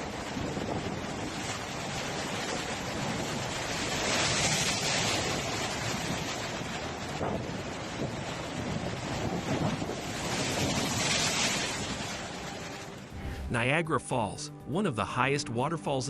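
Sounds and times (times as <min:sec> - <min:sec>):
wind buffeting microphone: 0:00.0 - 0:03.9, 0:05.0 - 0:13.6
storm waves crashing: 0:00.0 - 0:13.9.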